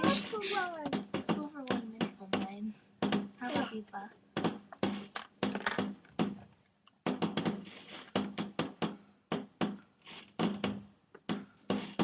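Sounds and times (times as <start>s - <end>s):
fireworks bangs and cracks: 7.0s - 10.8s.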